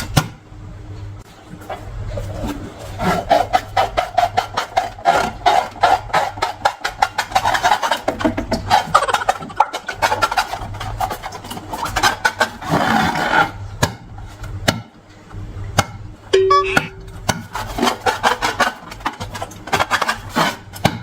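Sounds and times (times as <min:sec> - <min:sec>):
latex balloons being rubbed: 0:01.3 - 0:13.6, 0:17.2 - 0:21.0.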